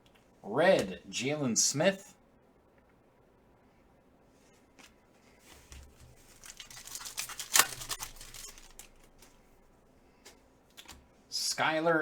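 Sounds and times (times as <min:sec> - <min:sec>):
foil wrapper crinkling: 0:05.8 - 0:09.4
wrapper snapping: 0:06.2 - 0:09.3.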